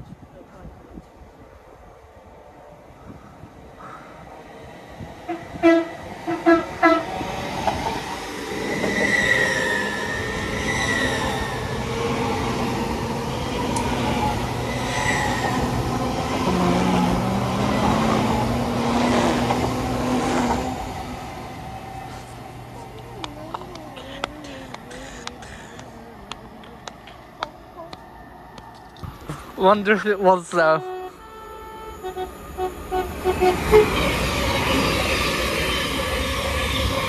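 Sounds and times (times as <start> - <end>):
train rushing and rumbling: 0.0 - 37.0
train horn toots: 5.3 - 7.1, 30.5 - 35.1
high wheel squeals: 8.5 - 11.8, 14.2 - 18.4, 30.6 - 37.0.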